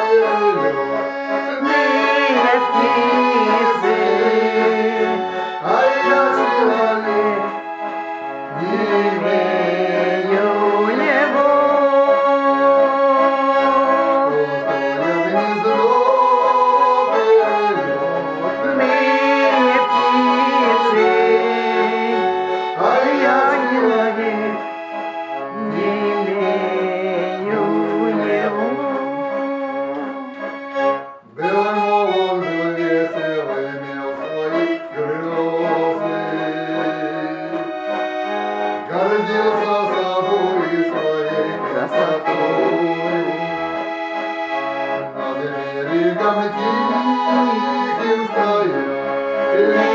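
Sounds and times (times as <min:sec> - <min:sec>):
button accordion playing melody: 0:00.0 - 0:49.9.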